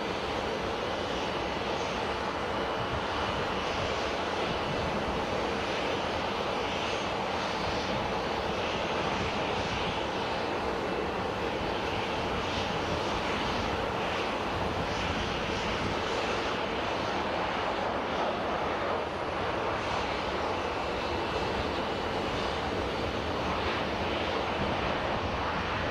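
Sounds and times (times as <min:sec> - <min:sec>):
jet engines running: 0:00.0 - 0:25.9.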